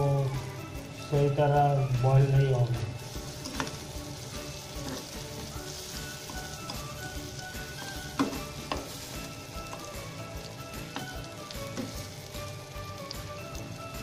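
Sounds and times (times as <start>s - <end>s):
eggplant sizzling in oil: 0.0s - 14.0s.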